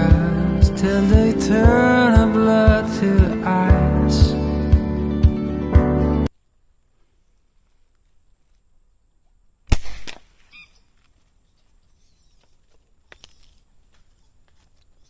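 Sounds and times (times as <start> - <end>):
shotgun blast: 9.7 - 10.3.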